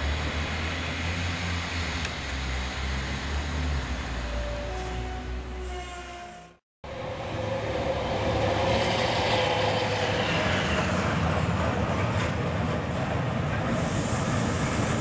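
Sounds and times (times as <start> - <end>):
train rolling on tracks: 2.7 - 15.0.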